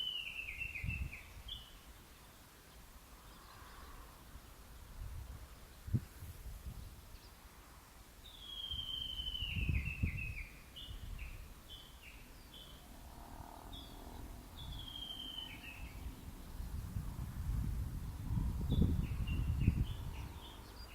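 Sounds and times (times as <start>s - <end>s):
low rumble of wind: 0.0s - 20.9s
bird whistling call: 8.3s - 11.4s, 14.6s - 16.0s.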